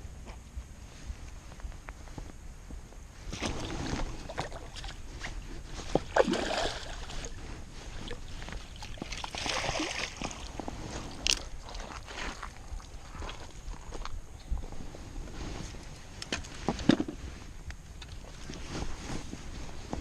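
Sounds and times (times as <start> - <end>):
water sloshing and splashing: 3.3 - 13.5.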